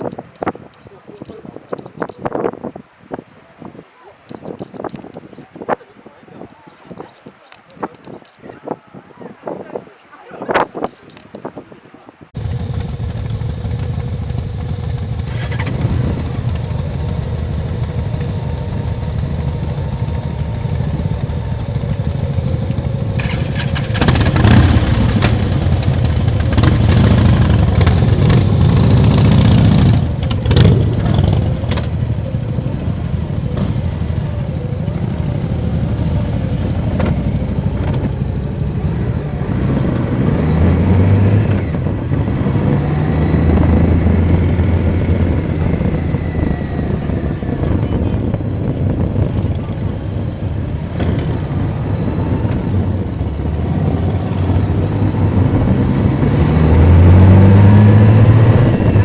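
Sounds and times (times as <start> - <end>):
motorcycle engine running: 12.4 - 59.0.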